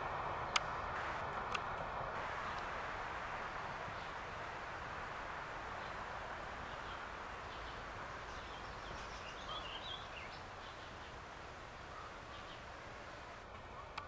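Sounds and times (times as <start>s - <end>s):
outdoor background hiss: 0.0s - 14.0s
bird chirping: 2.2s - 13.4s.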